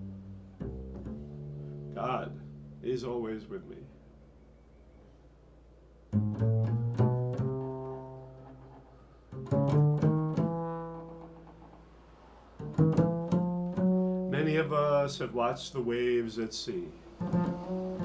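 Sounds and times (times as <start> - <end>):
low plucked string notes: 0.0 - 4.4, 6.1 - 12.0, 12.6 - 15.2, 16.9 - 18.0.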